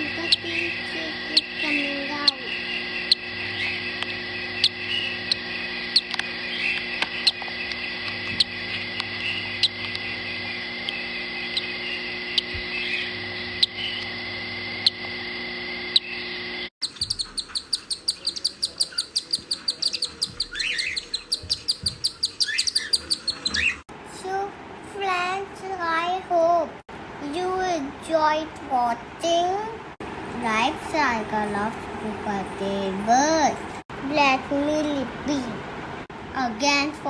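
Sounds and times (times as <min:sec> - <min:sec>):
rapid high chirps: 0:00.0 - 0:14.2, 0:15.8 - 0:23.8
birds chirping: 0:00.0 - 0:23.9
steady hum: 0:00.0 - 0:37.0.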